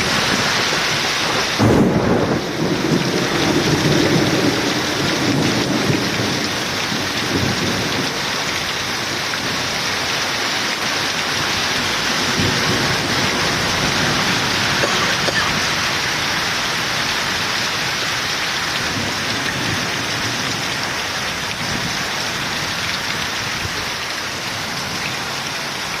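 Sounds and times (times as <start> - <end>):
thunder rumbling: 0.0 - 8.8, 11.5 - 18.2
heavy rain pouring: 0.0 - 26.0.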